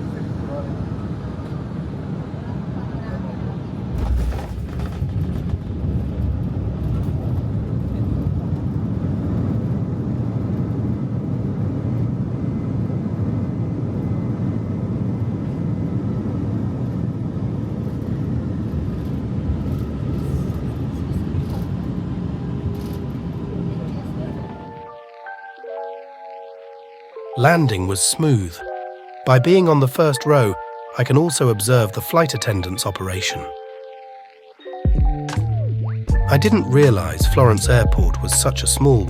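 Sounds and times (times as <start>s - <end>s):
jet engines rumbling: 0.0s - 34.6s
faint high whine: 17.2s - 34.9s.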